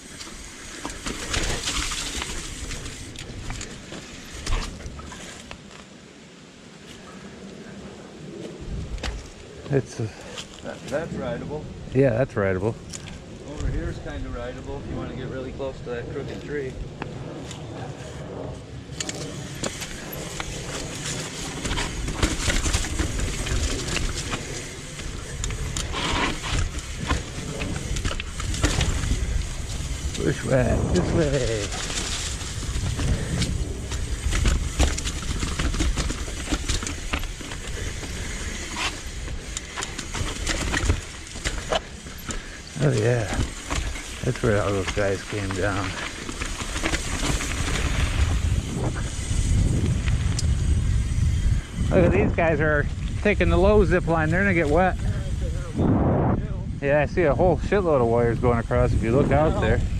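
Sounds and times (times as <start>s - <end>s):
bike clicks and rattles: 0.0s - 5.9s, 8.4s - 11.0s, 12.7s - 14.8s, 16.2s - 55.8s
bike tyres on dirt: 0.0s - 59.9s
wind rumble on microphone: 7.3s - 10.2s, 10.8s - 59.9s.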